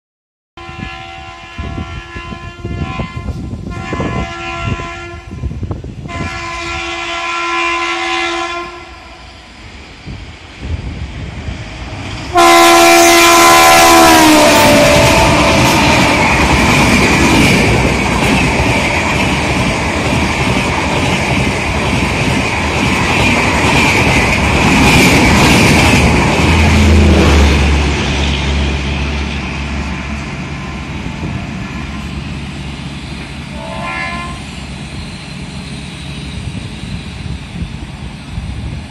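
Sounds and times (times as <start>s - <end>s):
train air horn: 0.6s - 9.3s, 12.3s - 16.6s, 30.5s - 32.4s, 33.4s - 34.7s
train rushing past: 0.6s - 38.9s
rail clatter: 13.9s - 38.9s.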